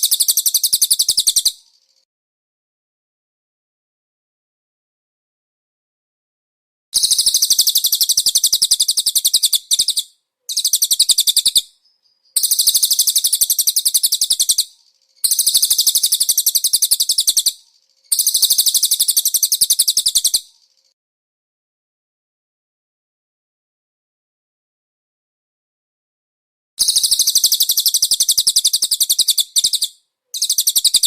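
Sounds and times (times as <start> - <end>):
songbird trilling: 0.0 - 1.9, 7.0 - 20.9, 26.8 - 31.0.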